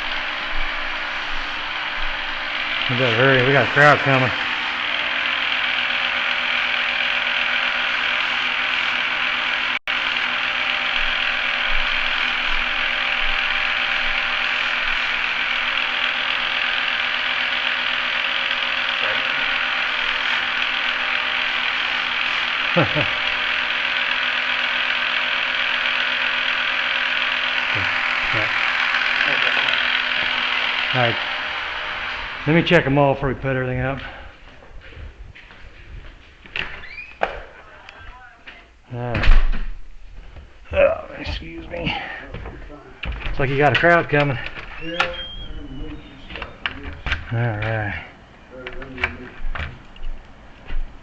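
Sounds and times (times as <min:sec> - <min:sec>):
key-cutting machine grinding: 0:00.0 - 0:34.2, 0:43.0 - 0:50.0.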